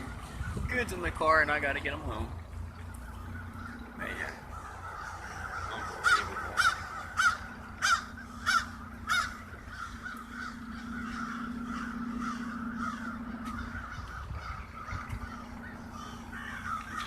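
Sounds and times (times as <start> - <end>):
chorus of crows cawing: 0.0 - 1.6, 2.5 - 17.0
loud crow caws: 3.1 - 17.0.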